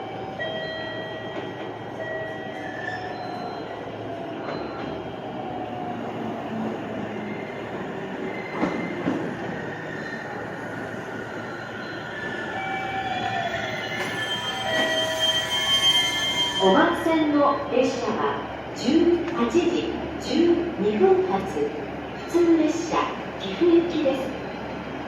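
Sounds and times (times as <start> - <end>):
train wheels and brakes squealing: 0.2 - 5.0, 7.0 - 17.1.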